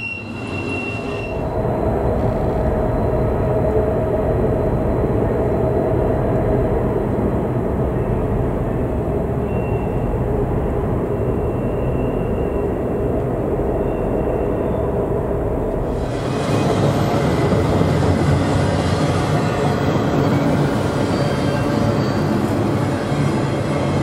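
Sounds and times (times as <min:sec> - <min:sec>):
wheels squealing: 0:00.0 - 0:01.4
freight train wheels rumbling: 0:00.0 - 0:24.0.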